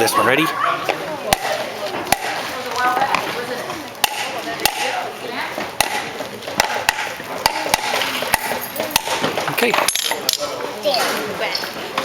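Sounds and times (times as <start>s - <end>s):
murmur of voices: 0.0s - 12.0s
hammer striking nail into wood: 6.6s - 8.4s.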